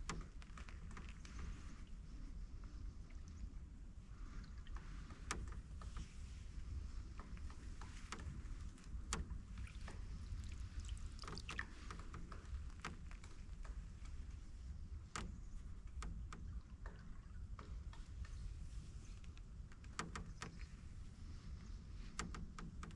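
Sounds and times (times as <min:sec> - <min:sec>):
paddle water sounds: 0:04.3 - 0:14.2.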